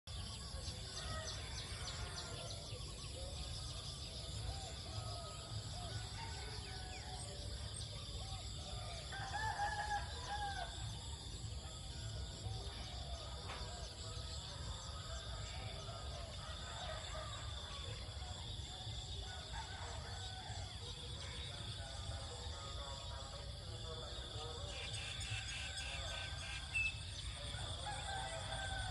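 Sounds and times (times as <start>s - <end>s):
rooster crowing: 27.6s - 28.9s.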